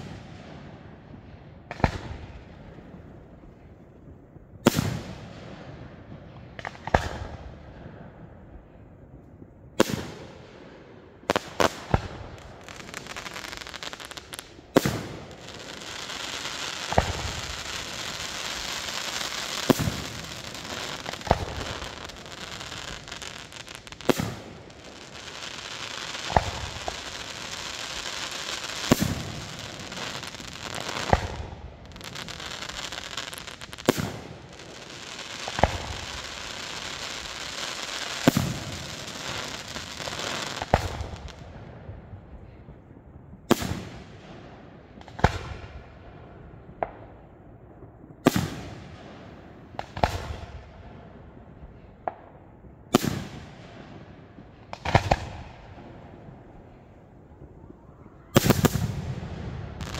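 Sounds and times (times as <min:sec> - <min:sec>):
firework crackling: 0:11.2 - 0:41.4, 0:54.7 - 0:59.9.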